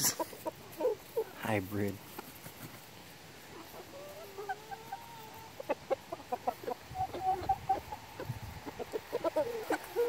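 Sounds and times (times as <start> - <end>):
chicken clucks: 0.0 - 1.5, 2.1 - 10.0
chicken drawn-out call: 3.4 - 10.0.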